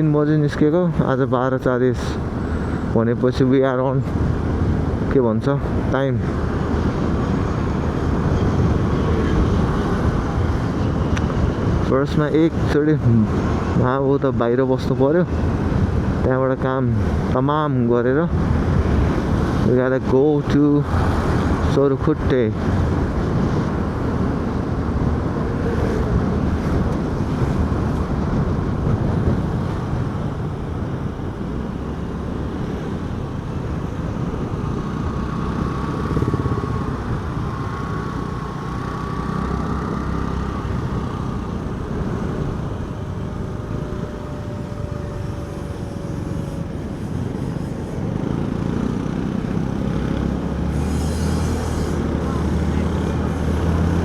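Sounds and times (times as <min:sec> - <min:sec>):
wind rumble: 0:00.0 - 0:54.0
motorcycle engine: 0:22.7 - 0:54.0.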